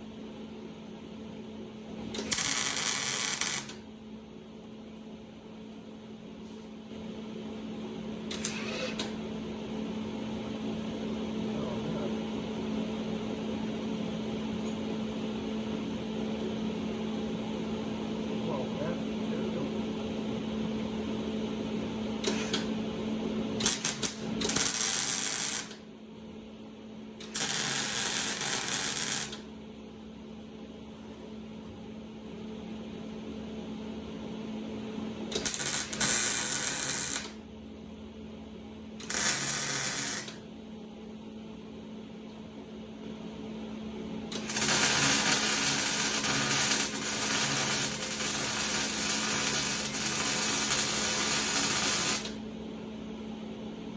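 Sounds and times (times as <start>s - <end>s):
steady hum: 0.0s - 53.9s
welding arc crackling: 2.2s - 3.8s, 23.6s - 25.8s, 27.2s - 29.4s, 35.3s - 37.4s, 39.0s - 40.4s, 44.3s - 52.4s.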